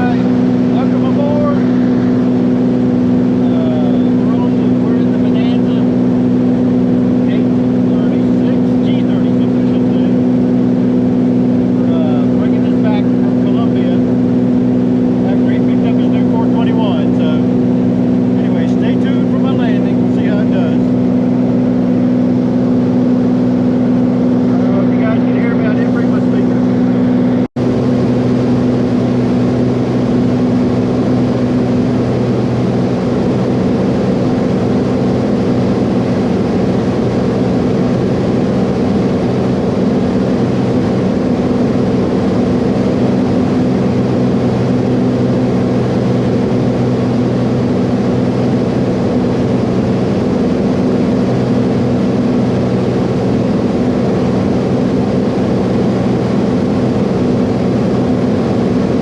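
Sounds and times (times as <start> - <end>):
propeller aircraft engine in cabin: 0.0 - 59.0.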